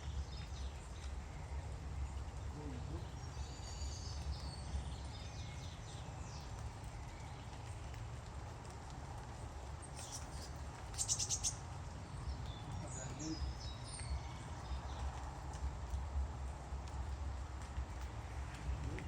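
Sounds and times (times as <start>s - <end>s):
birds chirping: 0.0s - 7.8s, 9.8s - 15.2s.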